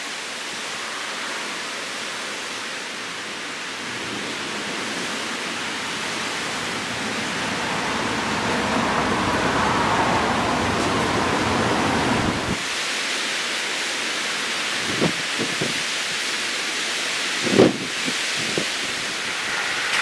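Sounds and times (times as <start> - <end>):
heavy rain pouring: 0.0 - 20.0
thunder rumble: 4.0 - 12.6, 17.4 - 20.0.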